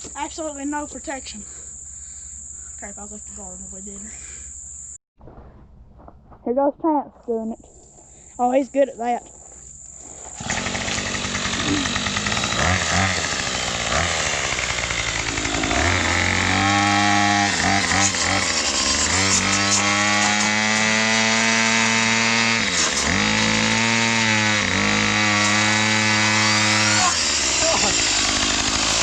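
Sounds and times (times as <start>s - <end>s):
blade cutting into tree: 10.3s - 29.0s
string trimmer engine revving: 10.4s - 29.0s.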